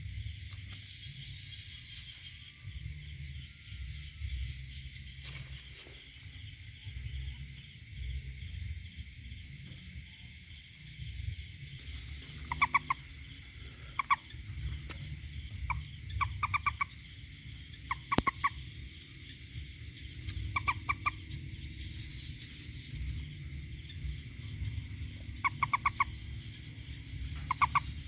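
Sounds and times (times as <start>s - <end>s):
low rumble: 6.3s - 28.0s
toad calling in pulsed notes: 11.8s - 28.0s.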